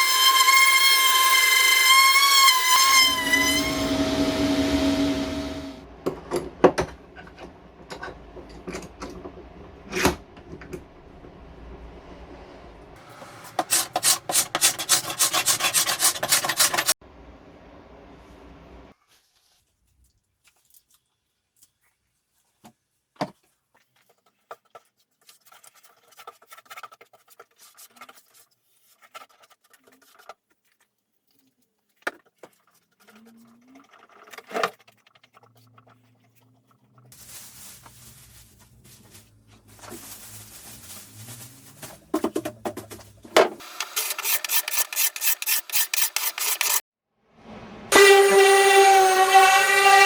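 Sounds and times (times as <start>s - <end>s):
machine humming: 3.1s - 6.1s
tools and parts handled: 13.1s - 16.9s, 37.1s - 46.8s.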